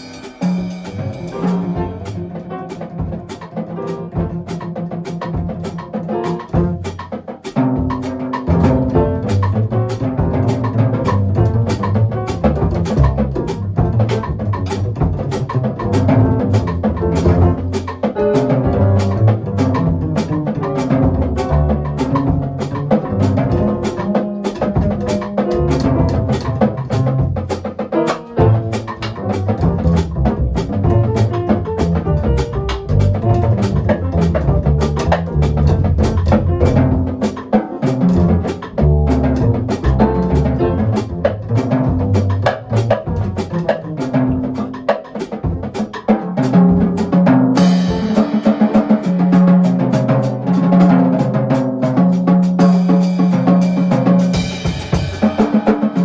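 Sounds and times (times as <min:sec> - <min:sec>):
jazz quartet playing: 0:00.0 - 0:56.0
walking double bass: 0:00.7 - 0:44.9.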